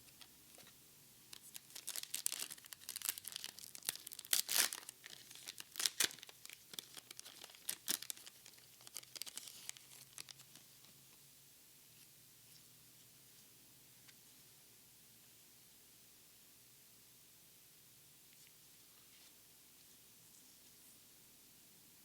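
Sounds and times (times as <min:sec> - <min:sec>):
foil wrapper tearing and crinkling: 0:01.4 - 0:10.5.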